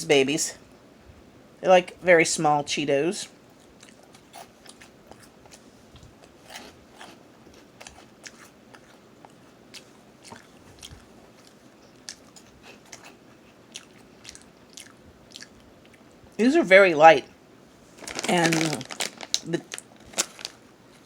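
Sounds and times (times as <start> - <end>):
person chewing crunchy snack: 3.6 - 16.1.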